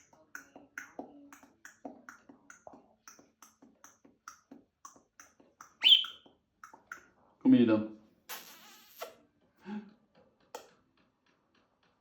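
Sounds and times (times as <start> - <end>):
parakeet chirp rising in pitch: 5.8 - 6.2.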